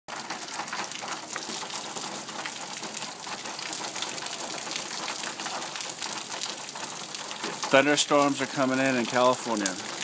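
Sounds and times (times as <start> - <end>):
steady rain falling: 0.1 - 10.0.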